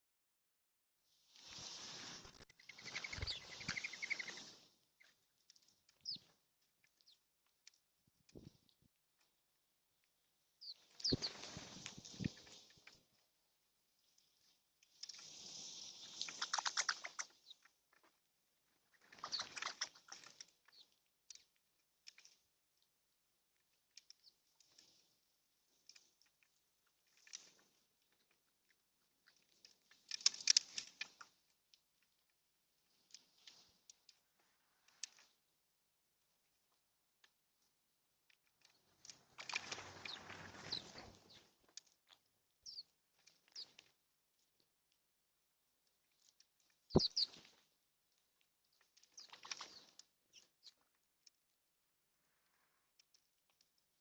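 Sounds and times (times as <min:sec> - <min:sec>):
fluttering bird wings: 0:01.3 - 0:04.7, 0:10.8 - 0:13.0, 0:15.1 - 0:17.7, 0:18.9 - 0:20.5, 0:39.1 - 0:41.6
birds pecking at seed: 0:01.4 - 0:54.0
short high bird chirps: 0:02.5 - 0:04.6, 0:10.6 - 0:11.4, 0:46.9 - 0:47.4.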